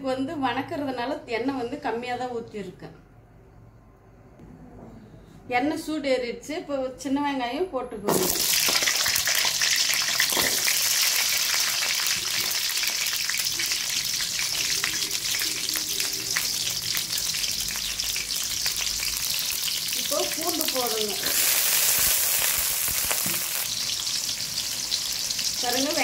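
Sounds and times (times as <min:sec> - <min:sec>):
onions sizzling in hot oil: 0:08.1 - 0:26.0.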